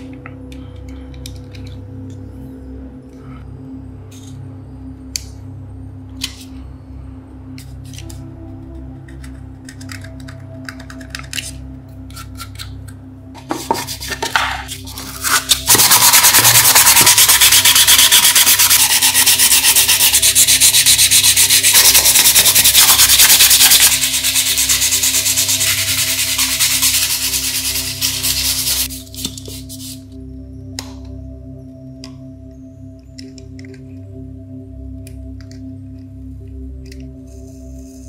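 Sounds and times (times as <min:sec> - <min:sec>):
sanding scrubbing strokes: 0:14.9 - 0:30.0.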